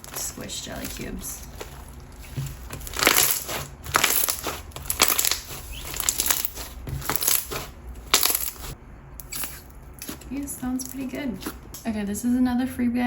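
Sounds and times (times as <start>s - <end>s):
slime squished by hand: 0.8s - 10.2s.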